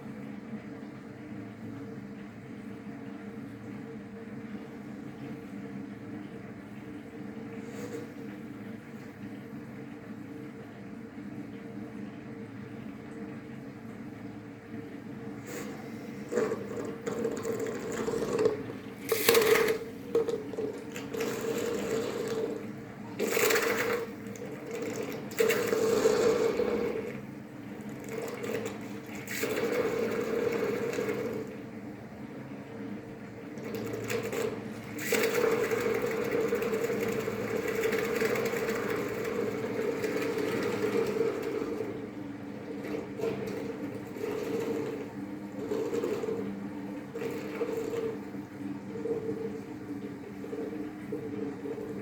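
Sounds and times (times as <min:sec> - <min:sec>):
liquid boiling violently: 0:14.4 - 0:52.0.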